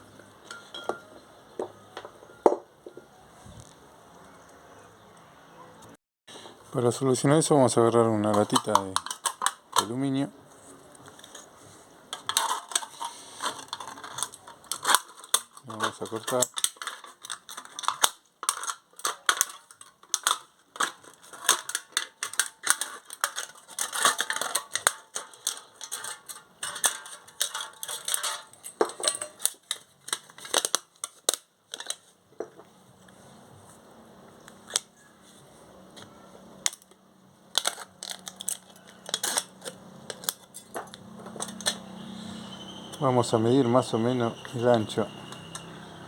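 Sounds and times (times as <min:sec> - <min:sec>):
aluminium can crinkling: 0:08.0 - 0:10.1, 0:12.1 - 0:32.6, 0:36.6 - 0:41.8.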